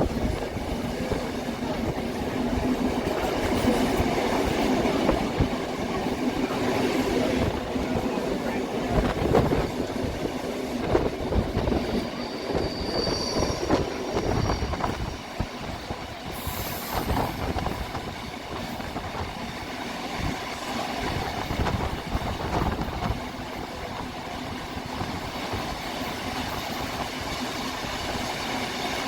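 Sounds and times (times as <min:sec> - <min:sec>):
train carriages rumbling on track: 0:00.0 - 0:29.0
high wheel squeal: 0:12.0 - 0:15.2.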